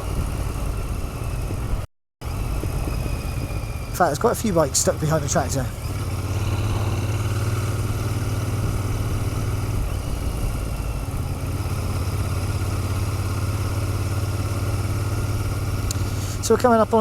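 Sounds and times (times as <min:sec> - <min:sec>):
motorcycle engine running low: 0:00.0 - 0:17.0.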